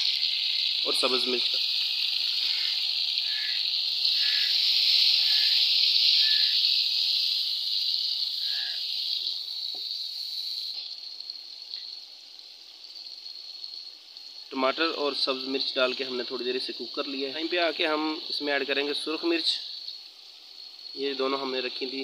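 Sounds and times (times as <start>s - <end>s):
food sizzling in hot fat: 0.0s - 22.0s.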